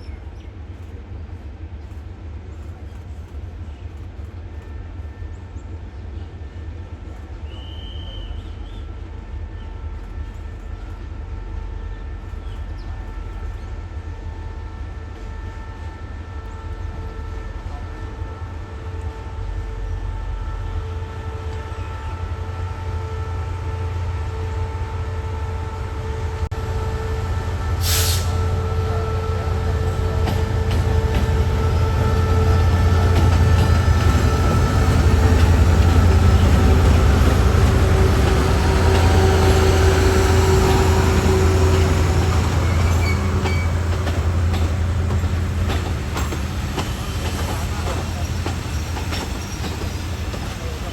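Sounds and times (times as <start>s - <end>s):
diesel train engine rumble: 0.0s - 50.9s
brief high hiss: 27.8s - 28.5s.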